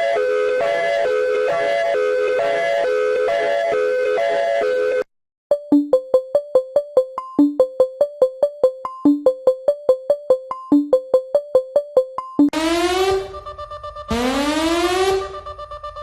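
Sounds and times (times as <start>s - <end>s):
electronic keyboard melody: 0.0s - 16.0s
held electronic chord: 12.5s - 16.0s.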